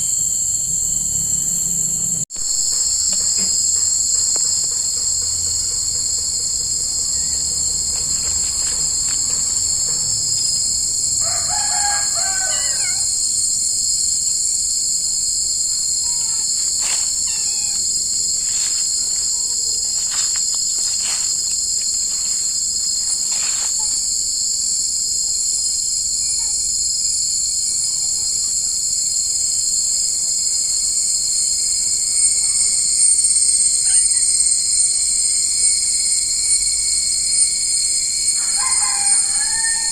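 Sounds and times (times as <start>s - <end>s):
insects buzzing shrilly: 0.0s - 39.9s
rooster crowing: 5.2s - 13.5s, 37.0s - 39.9s.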